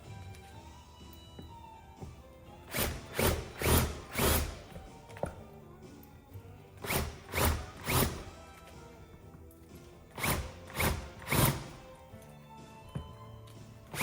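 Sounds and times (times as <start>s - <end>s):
background music: 0.0s - 14.0s
shop tool noisy bursts: 2.7s - 4.7s, 6.8s - 8.3s, 10.2s - 11.8s.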